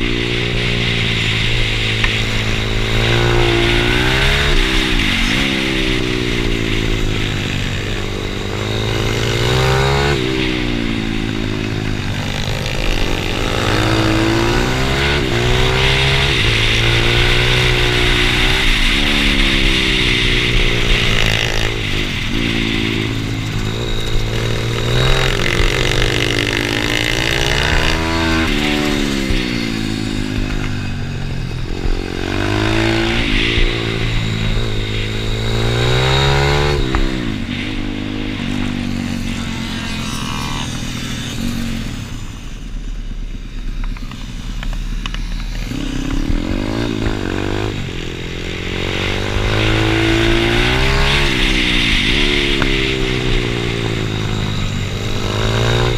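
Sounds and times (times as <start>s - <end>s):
pit bike engine revving: 0.0s - 55.9s.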